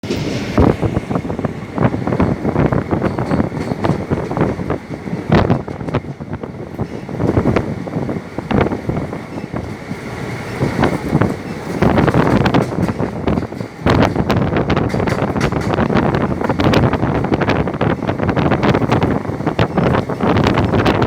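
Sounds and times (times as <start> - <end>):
train rumbling along track: 0.0 - 21.0
wind buffeting microphone: 0.0 - 21.0.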